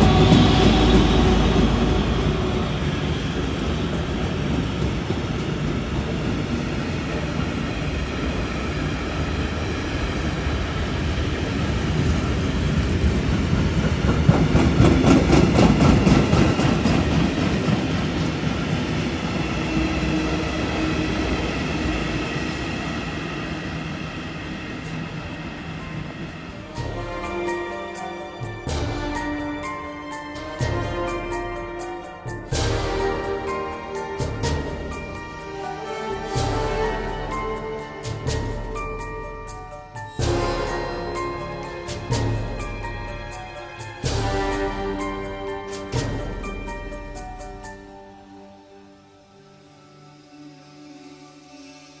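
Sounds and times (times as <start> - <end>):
train running on tracks: 0.0 - 52.0.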